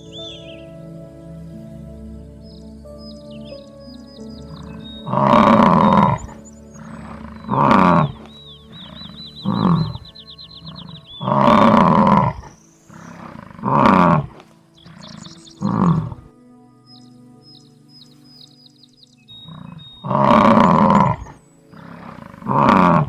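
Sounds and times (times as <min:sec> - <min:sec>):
high chirping trills: 0:00.0 - 0:23.0
large animal deep calls: 0:04.5 - 0:16.3, 0:19.4 - 0:23.0.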